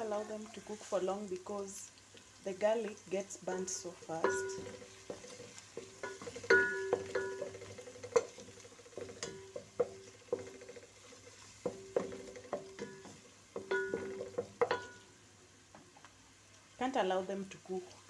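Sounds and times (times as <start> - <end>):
faint sizzling: 0.0 - 18.0
spoon knocking on ringing pot: 3.5 - 8.3, 9.0 - 10.7, 11.7 - 15.1.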